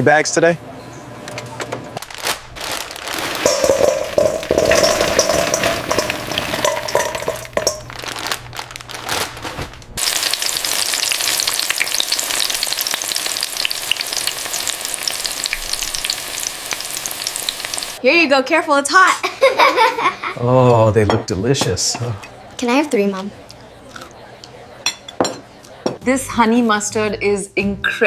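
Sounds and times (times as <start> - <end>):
food sizzling in hot oil: 2.8 - 8.5, 10.0 - 18.0.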